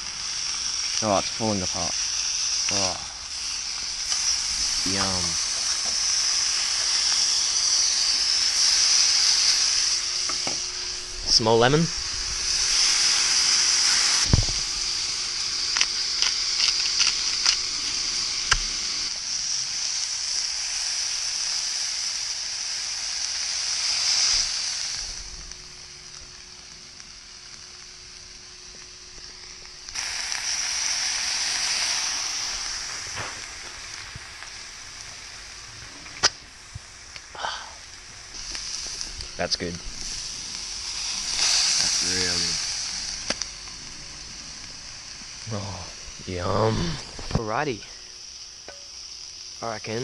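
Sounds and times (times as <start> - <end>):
fish sizzling in hot oil: 0.0 - 50.0
oil popping and crackling: 0.0 - 50.0.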